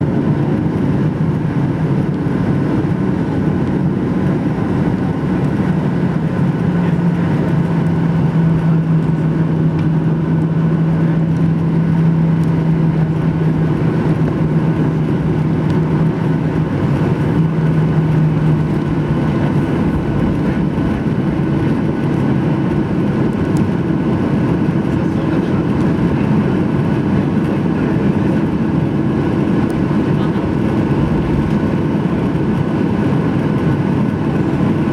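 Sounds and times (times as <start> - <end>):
jet engines humming: 0.0 - 34.9
low drone: 0.7 - 34.9
higher drone: 2.4 - 34.9
cabin air noise: 12.0 - 25.6.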